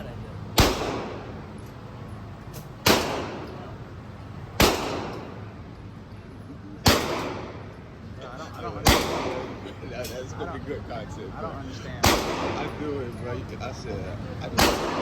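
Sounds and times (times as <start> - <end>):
gunshots with echo: 0.6 - 1.4, 2.8 - 3.6, 4.6 - 5.4, 6.9 - 7.6, 8.9 - 9.6, 12.0 - 12.8, 14.6 - 15.0.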